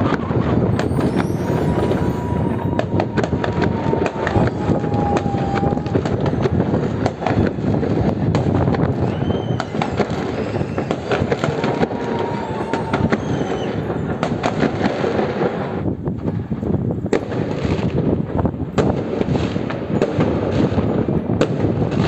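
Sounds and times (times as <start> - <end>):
firework whistling: 0.0 - 18.0
fireworks crackling and banging: 0.0 - 22.0.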